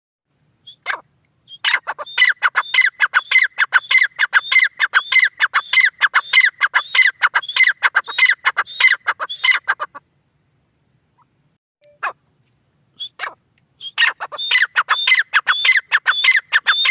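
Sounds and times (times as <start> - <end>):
francolin calling: 0.6 - 10.0, 13.0 - 16.9.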